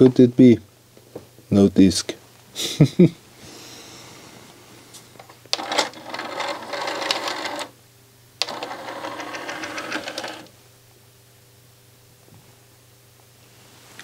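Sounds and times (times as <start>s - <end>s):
cd mechanism buzzing and clicking: 5.2s - 7.8s, 8.4s - 10.5s.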